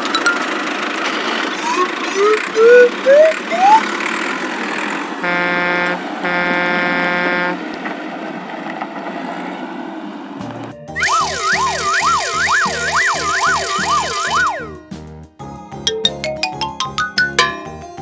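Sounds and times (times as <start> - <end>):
rising whistle-like glides: 1.6 - 3.9, 11.0 - 14.8
vehicle horn tooting: 5.2 - 7.6.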